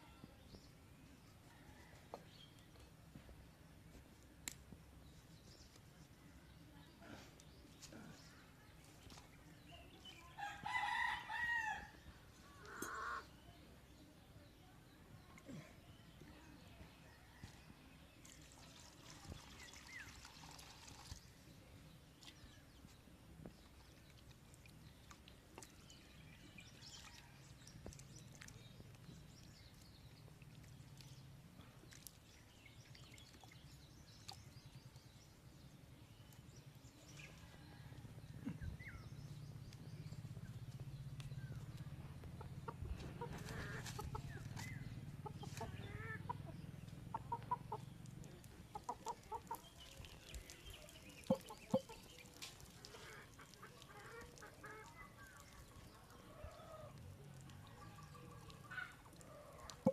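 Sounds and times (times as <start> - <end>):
chickens clucking: 41.8 - 50.2, 51.2 - 56.9.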